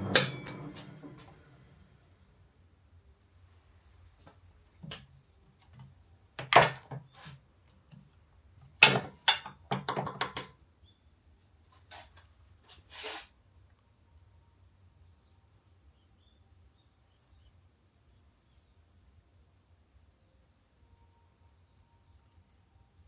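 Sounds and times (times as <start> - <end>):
hard objects knocking and clattering: 8.8 - 10.6.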